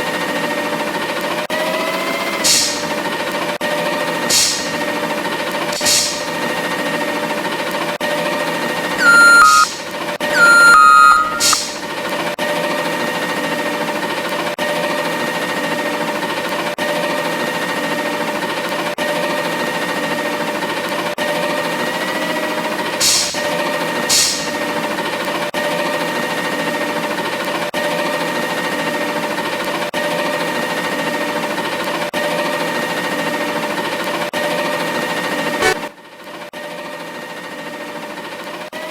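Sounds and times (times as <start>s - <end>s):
short sharp clacks: 2.5s - 2.9s, 4.3s - 4.8s, 5.8s - 6.4s, 9.0s - 11.9s, 23.0s - 23.5s, 24.1s - 24.6s
loud beeps: 9.0s - 11.9s, 35.6s - 35.8s.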